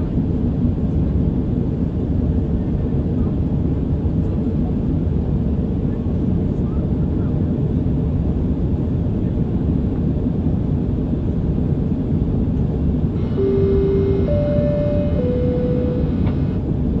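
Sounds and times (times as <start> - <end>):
held tones: 13.2 - 16.6.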